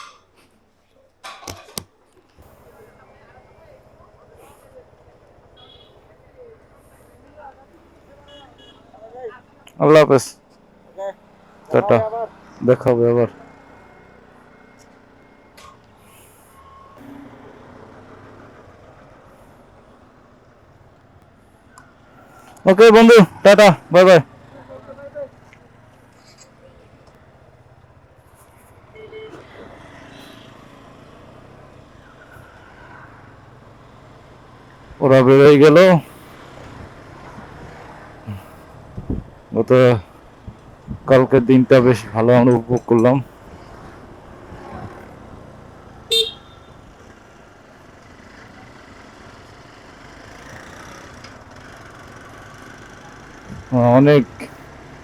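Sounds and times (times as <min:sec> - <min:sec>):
faint road background noise: 0:00.0 - 0:55.0
motorcycle engines idling: 0:00.0 - 0:55.0
vehicle horn beep: 0:05.6 - 0:06.0, 0:08.2 - 0:08.9, 0:28.9 - 0:30.6, 0:46.1 - 0:46.9.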